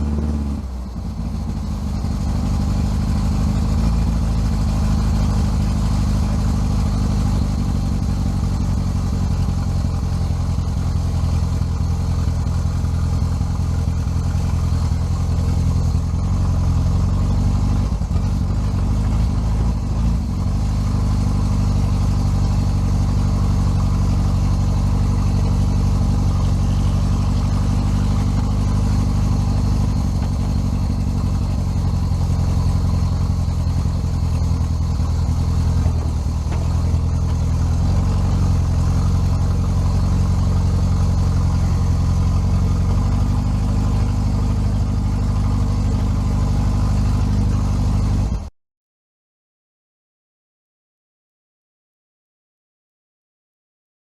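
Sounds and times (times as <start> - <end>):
engine idling: 0.0 - 48.5.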